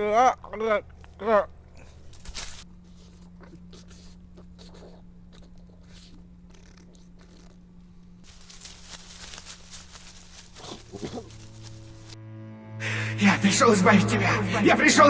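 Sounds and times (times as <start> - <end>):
person biting crunchy food: 1.8 - 12.1.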